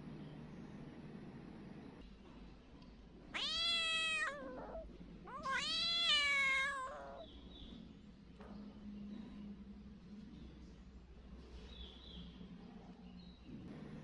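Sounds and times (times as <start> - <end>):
cat meowing: 3.3 - 7.3.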